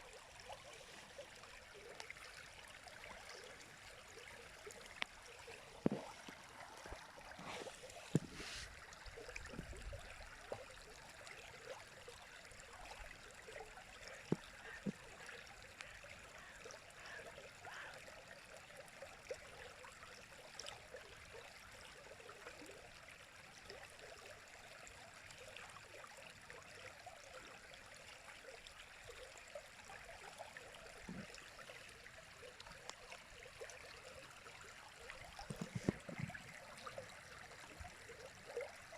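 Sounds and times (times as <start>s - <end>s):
small splashes and gurgles: 0.0s - 18.0s, 30.1s - 38.9s.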